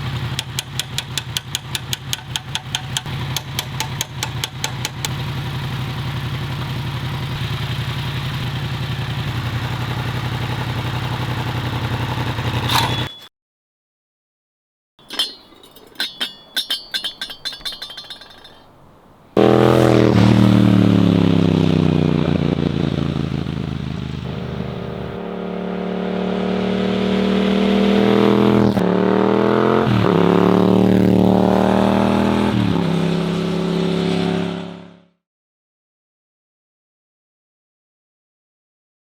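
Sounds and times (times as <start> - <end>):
motorcycle engine revving: 0.0 - 13.0, 19.4 - 35.1
metallic clinks and rattles: 15.0 - 19.4.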